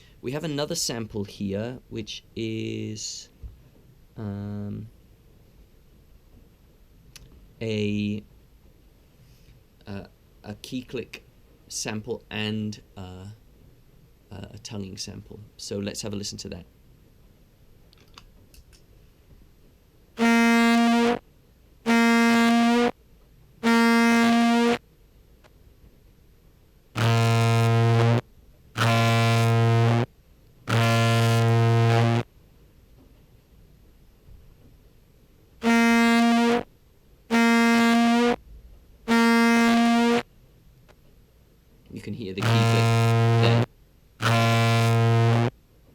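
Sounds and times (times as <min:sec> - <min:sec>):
tongued contrabass clarinet notes: 0:20.2 - 0:21.2, 0:21.9 - 0:22.9, 0:23.6 - 0:24.8, 0:27.0 - 0:28.2, 0:28.8 - 0:30.1, 0:30.7 - 0:32.2, 0:35.6 - 0:36.6, 0:37.3 - 0:38.4, 0:39.1 - 0:40.2, 0:42.4 - 0:45.5.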